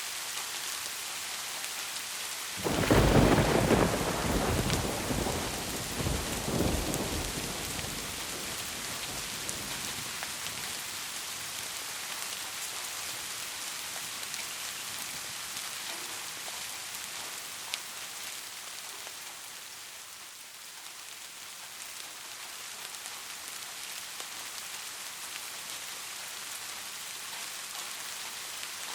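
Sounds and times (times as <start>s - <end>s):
steady rain falling: 0.0s - 28.9s
thunder rumble: 2.6s - 10.2s.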